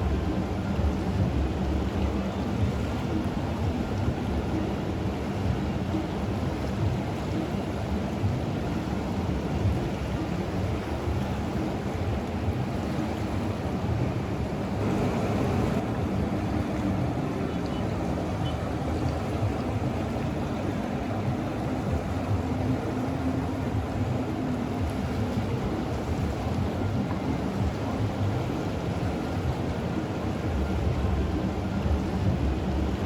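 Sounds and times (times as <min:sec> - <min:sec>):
river water rushing: 0:00.0 - 0:33.0
wind buffeting microphone: 0:00.0 - 0:33.0.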